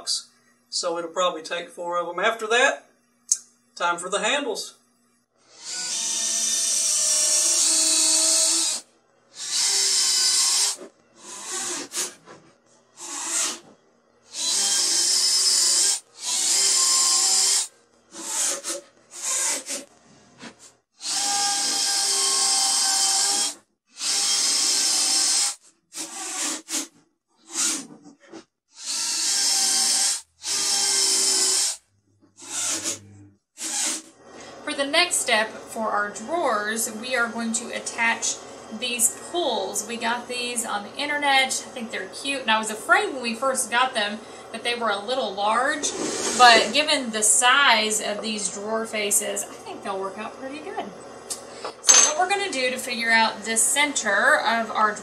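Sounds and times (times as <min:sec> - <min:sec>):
cordless drill motor whine: 0:05.3 - 0:12.2, 0:13.0 - 0:13.7, 0:14.3 - 0:19.8, 0:21.0 - 0:26.7, 0:28.8 - 0:31.8, 0:32.4 - 0:34.6.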